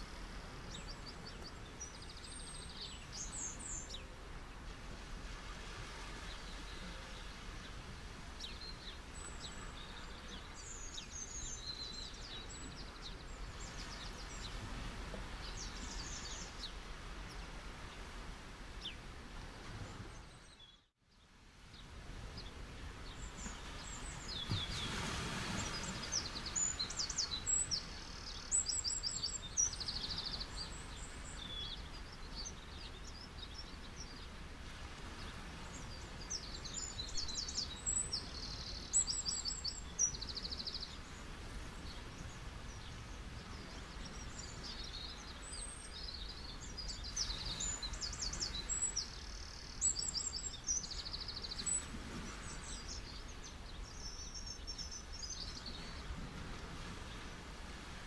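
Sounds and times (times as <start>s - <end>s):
small birds chirping: 0.6s - 4.6s, 6.2s - 14.6s, 15.3s - 18.1s, 20.0s - 34.4s, 35.2s - 56.1s.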